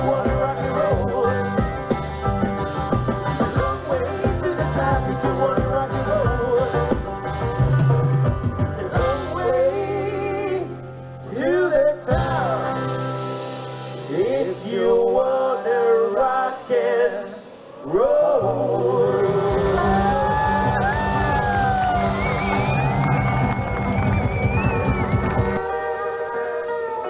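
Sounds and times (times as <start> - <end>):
men singing in harmony: 0.0 - 2.0, 3.4 - 7.2, 7.8 - 13.3, 14.0 - 20.1
band music: 0.0 - 27.0.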